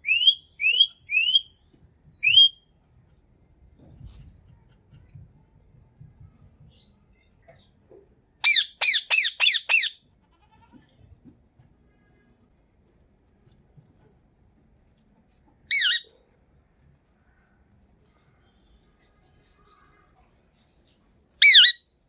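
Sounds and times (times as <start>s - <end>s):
parakeet screeching: 8.4s - 10.0s, 15.7s - 16.1s, 21.4s - 21.8s.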